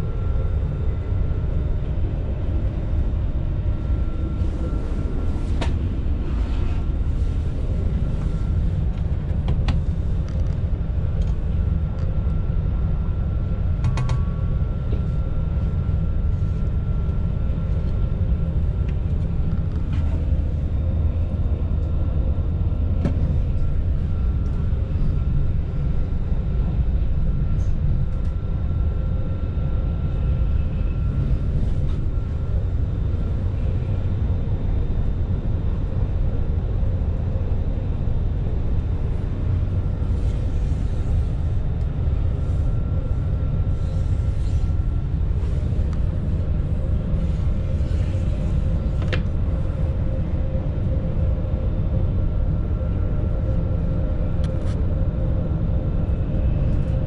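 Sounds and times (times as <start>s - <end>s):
train cabin rumble: 0.0s - 29.3s, 37.1s - 52.0s
faint steady whine: 0.0s - 57.0s.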